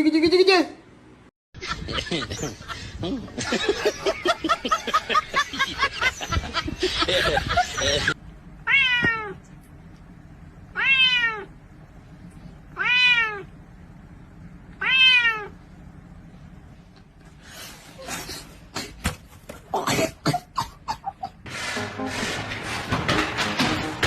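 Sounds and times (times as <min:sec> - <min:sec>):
cat meowing: 0:08.7 - 0:09.4, 0:10.8 - 0:11.5, 0:12.8 - 0:13.5, 0:14.8 - 0:15.6
knocks and rustling: 0:21.5 - 0:24.0.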